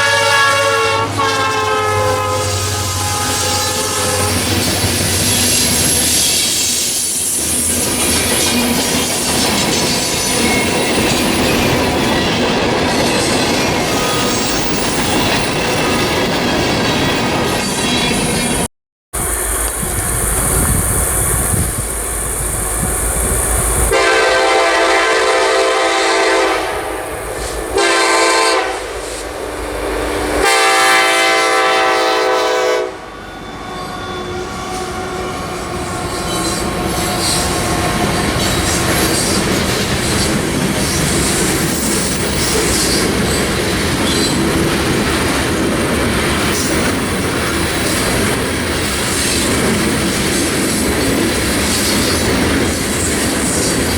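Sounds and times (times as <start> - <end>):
train horn blasts: 0.0 - 4.7, 23.9 - 29.1, 30.3 - 36.6
train rumble: 0.0 - 53.9
wheels clacking on rail joints: 4.1 - 24.0, 35.9 - 53.9.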